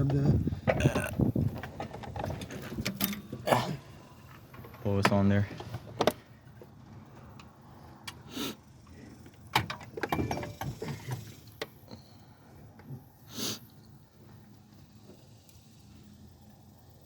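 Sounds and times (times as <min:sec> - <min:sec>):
tools clicking and scraping on engine: 0:00.0 - 0:12.1.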